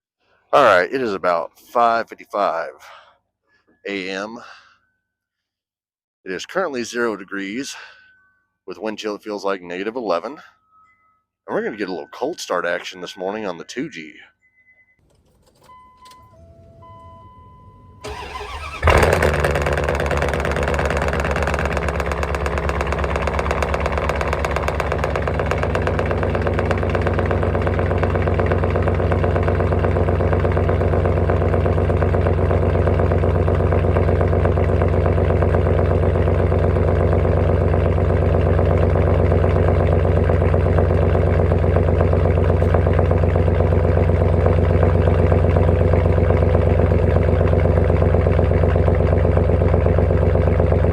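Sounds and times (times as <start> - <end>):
chime beeps: 10.2 - 15.0
engine cranking: 15.0 - 17.2, 18.0 - 50.9
truck engine idling: 15.0 - 50.9.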